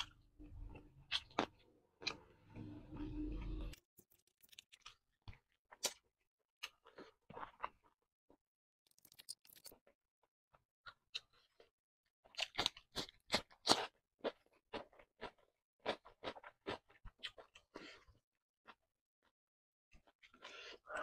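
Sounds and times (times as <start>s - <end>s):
cucumber crunching being chewed: 12.3s - 17.8s.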